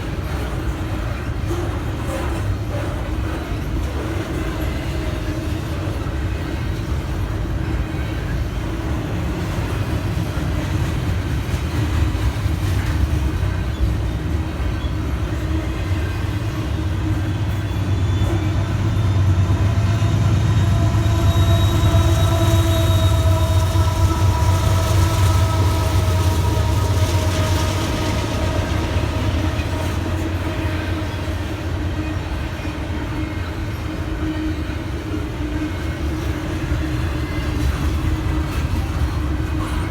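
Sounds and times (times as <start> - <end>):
freight train wheels rumbling on rail: 0.0 - 39.9
sustained whining tones: 16.1 - 32.3.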